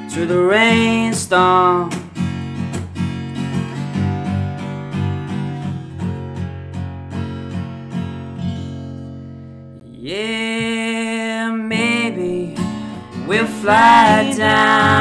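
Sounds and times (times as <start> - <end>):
person singing: 0.0 - 2.0, 9.8 - 15.0
acoustic guitar strumming: 0.0 - 15.0.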